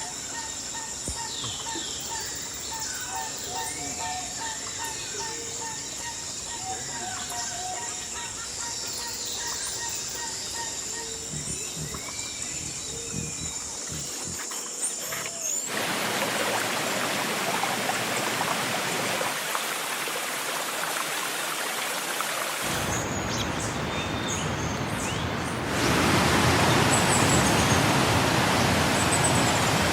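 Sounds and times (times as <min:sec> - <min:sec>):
steady hiss of rain: 0:15.5 - 0:29.9.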